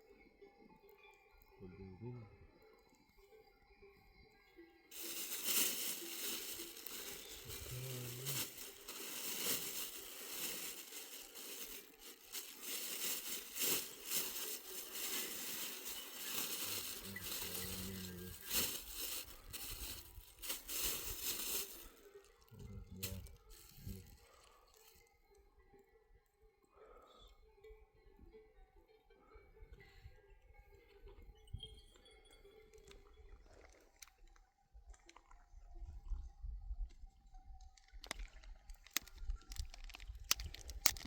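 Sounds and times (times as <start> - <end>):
rustling and crinkling: 4.9 - 25.0, 37.8 - 41.0.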